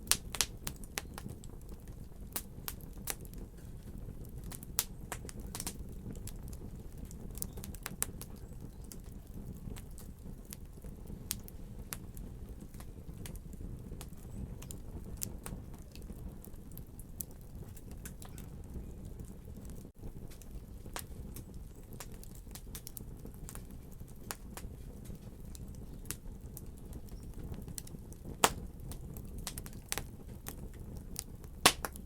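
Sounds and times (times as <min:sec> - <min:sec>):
low rumble of burning fire: 0:00.0 - 0:32.0
wood fire crackling: 0:00.0 - 0:32.0.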